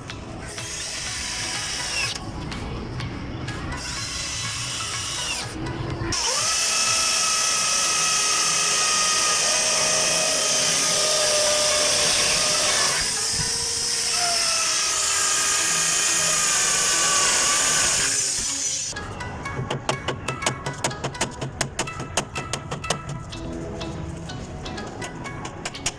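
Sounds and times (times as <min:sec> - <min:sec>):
electric drill whining: 0:00.5 - 0:02.2, 0:03.8 - 0:05.6, 0:06.2 - 0:18.9.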